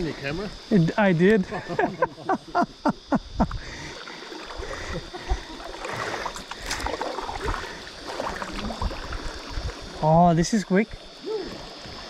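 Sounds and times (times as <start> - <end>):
river water splashing: 3.6 - 12.0.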